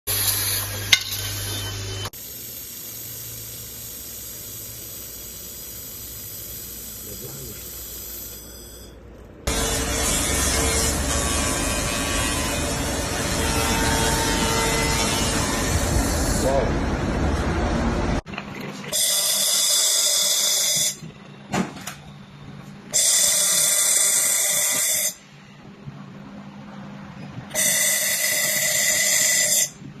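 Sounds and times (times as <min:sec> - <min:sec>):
laser welder hissing: 0:02.0 - 0:08.9.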